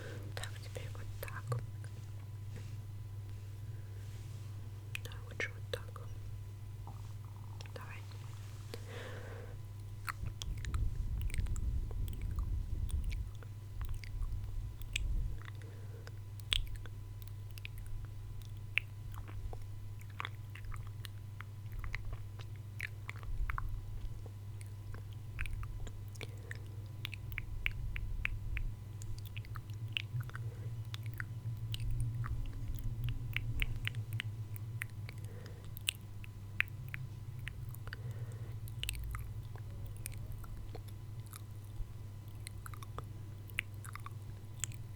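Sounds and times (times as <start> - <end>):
steady low hum: 0.0 - 44.9
wet mouth clicks and smacks: 9.8 - 44.9.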